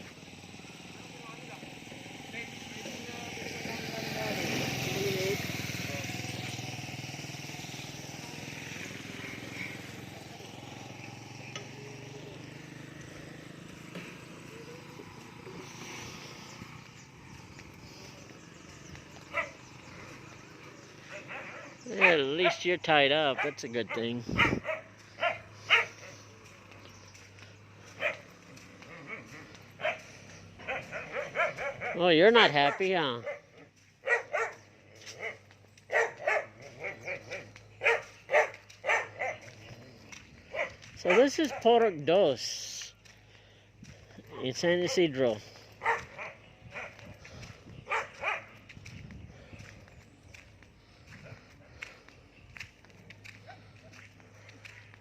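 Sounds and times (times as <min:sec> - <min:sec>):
small motorcycle engine running: 0:00.0 - 0:42.3, 0:42.9 - 0:55.0
dog barking: 0:19.2 - 0:19.7, 0:20.9 - 0:22.7, 0:23.3 - 0:26.3, 0:27.9 - 0:42.0, 0:45.8 - 0:47.1, 0:47.8 - 0:48.6.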